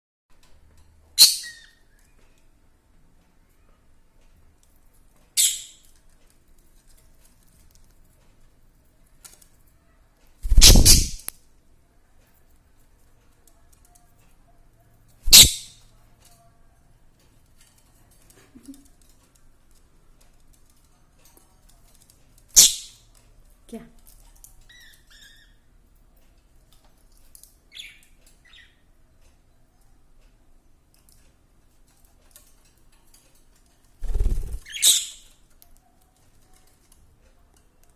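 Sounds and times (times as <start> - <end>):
budgies rustling at leaves: 10.4 - 11.3, 15.3 - 15.7, 32.0 - 37.1
budgies chirping: 15.3 - 15.6.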